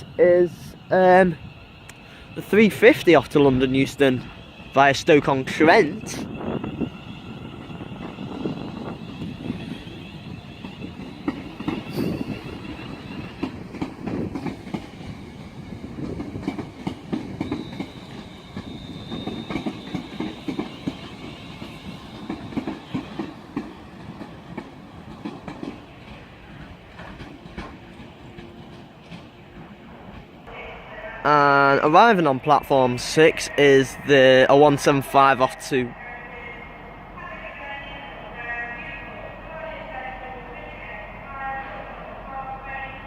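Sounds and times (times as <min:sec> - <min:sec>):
train rumble: 0:00.0 - 0:43.0
train wheels clacking over rail joints: 0:16.0 - 0:30.3.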